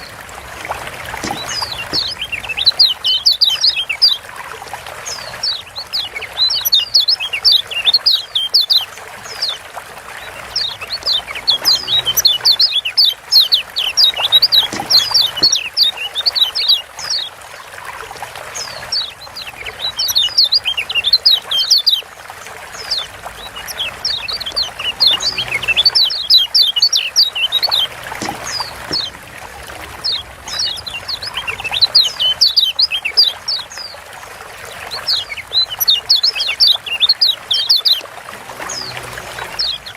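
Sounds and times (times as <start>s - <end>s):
bird chirping calls: 0.8s - 17.3s, 18.5s - 22.1s, 22.7s - 29.2s, 29.9s - 34.0s, 34.6s - 39.9s.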